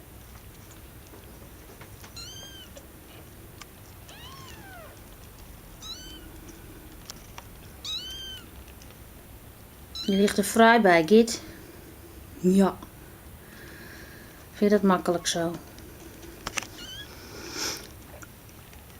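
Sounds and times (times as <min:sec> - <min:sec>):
kittens mewing: 0:02.0 - 0:07.0, 0:07.7 - 0:08.7, 0:15.1 - 0:18.2.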